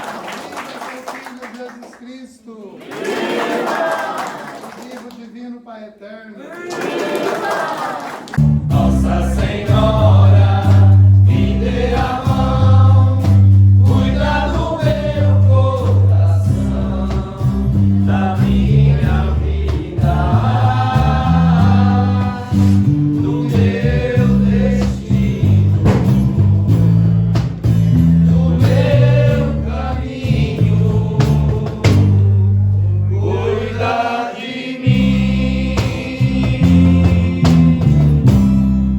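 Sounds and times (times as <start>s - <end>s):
choir singing religious song: 2.8s - 4.5s, 6.4s - 27.3s, 27.9s - 38.4s
stepping bass line: 8.4s - 32.8s, 34.9s - 38.9s.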